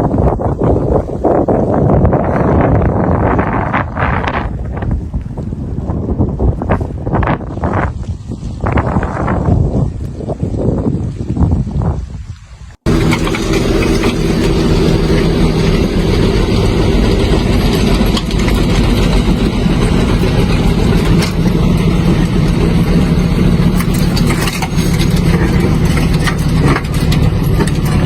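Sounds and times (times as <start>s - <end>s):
engine running: 12.8s - 28.0s.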